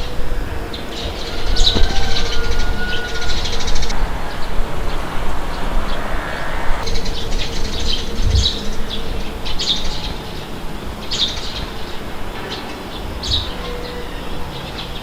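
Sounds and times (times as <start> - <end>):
steady rushing noise: 0.0 - 15.0
small birds chirping: 6.8 - 15.0.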